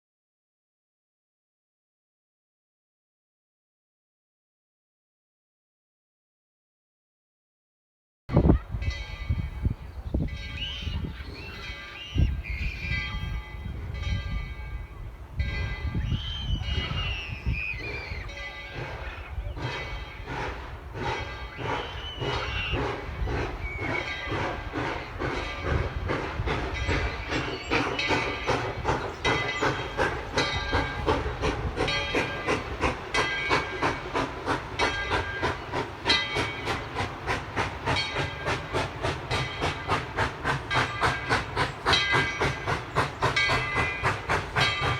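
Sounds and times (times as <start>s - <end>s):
steam locomotive chuffing: 8.3s - 44.9s
locomotive bell ringing: 8.7s - 20.4s, 21.0s - 37.1s, 37.8s - 44.9s
steam hissing: 16.0s - 44.9s.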